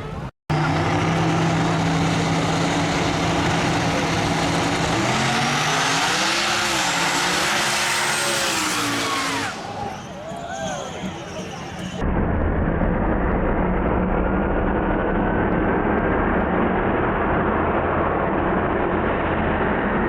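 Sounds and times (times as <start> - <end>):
racing car engine revving: 0.0 - 11.0.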